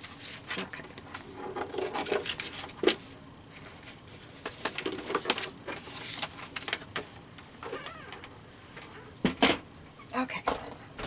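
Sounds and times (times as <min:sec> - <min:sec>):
paper rustling and clicking: 0:00.0 - 0:07.2.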